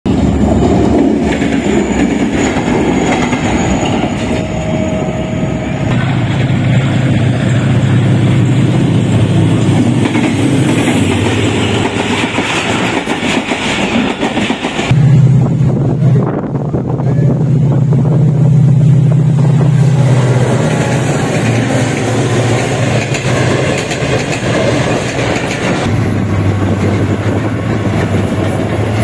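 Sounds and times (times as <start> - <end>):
locomotive engine running: 0.0 - 29.0
train wheels clattering over rail joints: 0.2 - 4.6, 5.9 - 14.9, 20.6 - 29.0.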